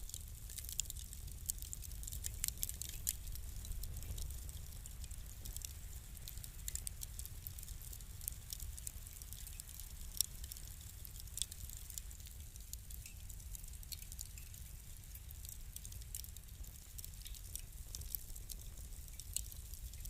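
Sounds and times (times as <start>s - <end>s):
low steady rumble: 0.0s - 9.2s
fire crackling and popping: 0.0s - 20.0s.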